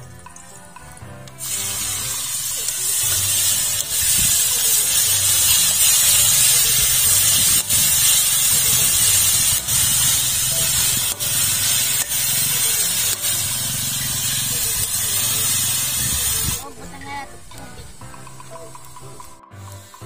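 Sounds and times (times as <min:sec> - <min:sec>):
mushrooms sizzling in hot oil: 0:00.3 - 0:20.0.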